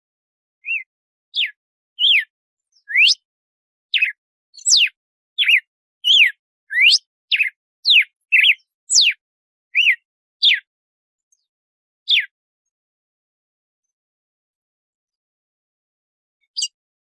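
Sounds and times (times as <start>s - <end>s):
bird whistling song: 0.6s - 3.3s, 3.9s - 10.7s, 12.1s - 12.4s, 16.4s - 16.8s.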